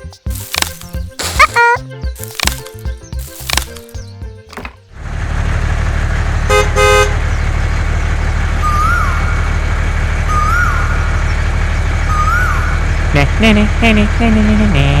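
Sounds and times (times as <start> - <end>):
vehicle engine running: 3.3 - 15.0
car horn toots: 6.5 - 7.2.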